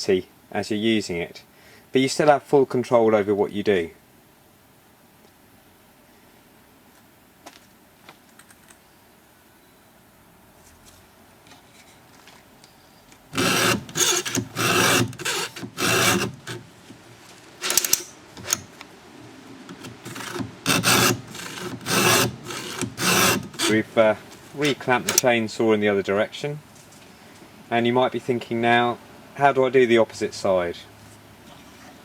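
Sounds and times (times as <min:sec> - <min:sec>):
file rasping on chainsaw chain: 0:13.4 - 0:16.6, 0:17.6 - 0:18.7, 0:19.7 - 0:24.0, 0:24.6 - 0:25.3.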